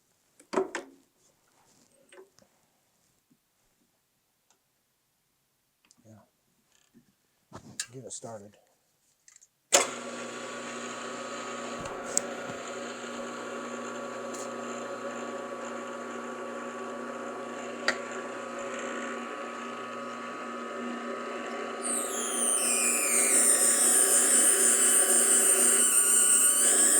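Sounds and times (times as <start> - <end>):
machine tool motor humming: 21.8 - 26.9.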